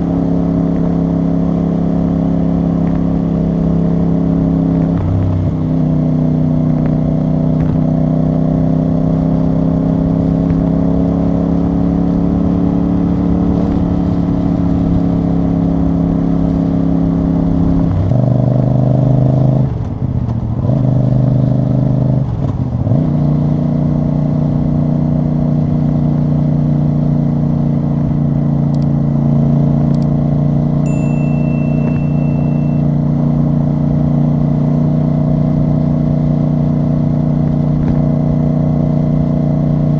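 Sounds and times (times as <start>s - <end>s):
motorcycle engine and exhaust: 0.0s - 39.9s
short high beep: 30.9s - 33.1s.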